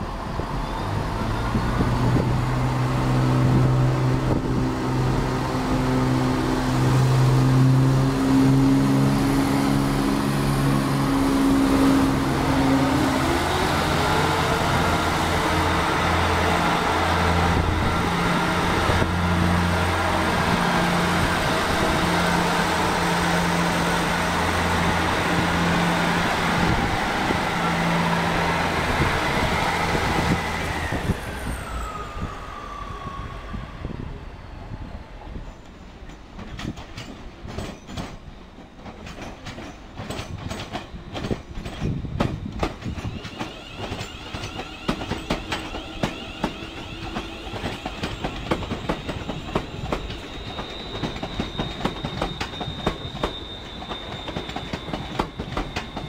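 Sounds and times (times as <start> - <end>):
diesel train engines running: 0.0 - 56.0
wheel and rail noise: 0.0 - 56.0
wheels clicking over rail joints: 36.0 - 56.0.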